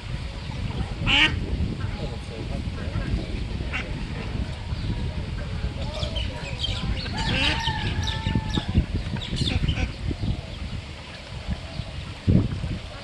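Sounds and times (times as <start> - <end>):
small birds chirping: 5.8 - 12.1
fowl-like call: 7.1 - 8.8.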